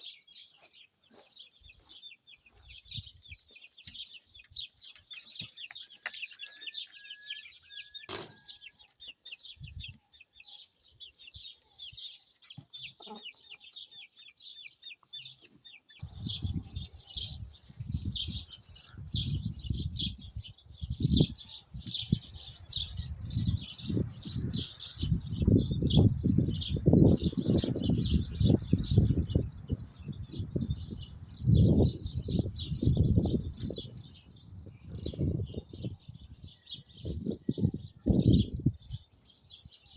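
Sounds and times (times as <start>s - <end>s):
small birds chirping: 0.0s - 39.9s
wind buffeting microphone: 9.4s - 10.0s, 16.0s - 39.8s.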